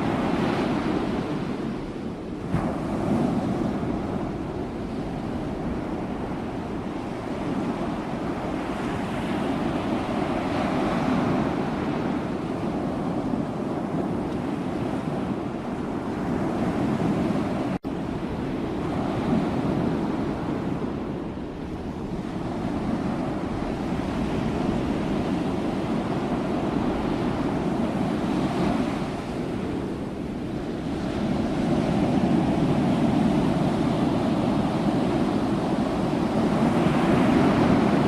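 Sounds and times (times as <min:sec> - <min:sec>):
sea waves breaking: 0:00.0 - 0:38.0.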